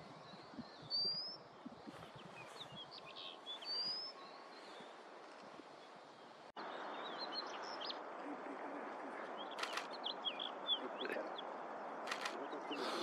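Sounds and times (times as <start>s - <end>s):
bird chirping: 0.0s - 13.0s
sharp clicking bird notes: 9.5s - 10.4s, 12.0s - 12.9s.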